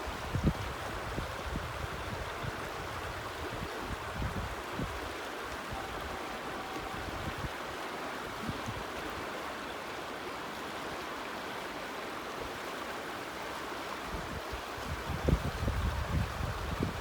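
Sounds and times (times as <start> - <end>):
waterfall rushing: 3.8 - 14.1.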